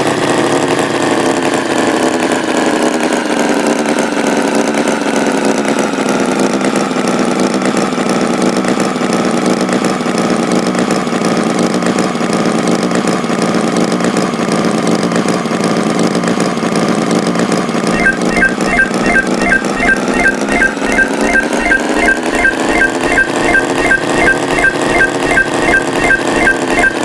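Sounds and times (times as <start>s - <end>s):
song with regular beat: 18.0s - 27.0s.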